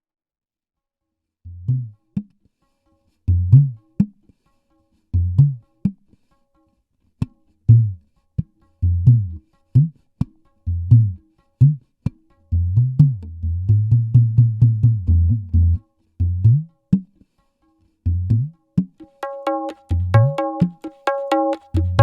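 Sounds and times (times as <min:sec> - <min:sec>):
hand drum strokes and slaps: 0:18.8 - 0:22.0.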